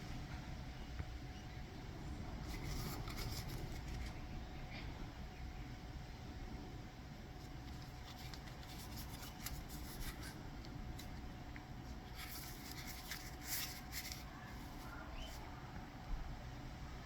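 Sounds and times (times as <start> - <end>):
faint steady hum: 0.0 - 17.0
packaging rustling and clicking: 12.1 - 14.3.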